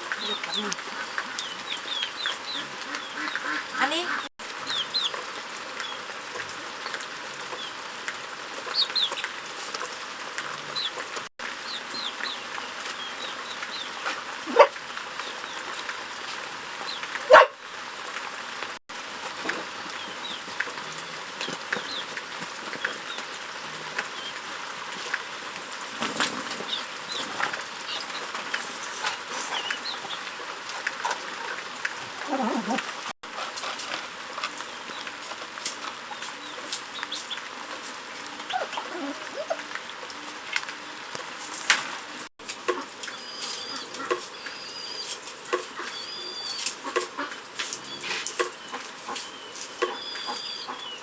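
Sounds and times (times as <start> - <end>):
poultry peeping and chirping: 0.1 - 6.0, 8.6 - 9.9, 10.5 - 11.0, 11.6 - 14.2, 19.8 - 20.6, 21.2 - 23.3, 26.6 - 31.6, 33.4 - 51.0
poultry squawks: 0.2 - 5.2, 42.7 - 51.0.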